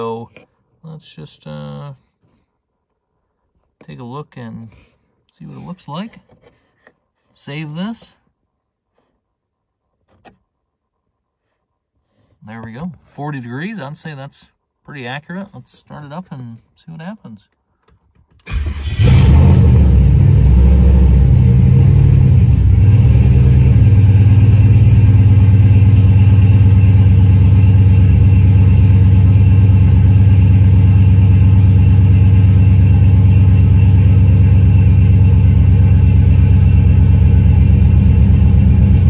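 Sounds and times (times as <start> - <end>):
car engine starting and idling: 18.4 - 39.0.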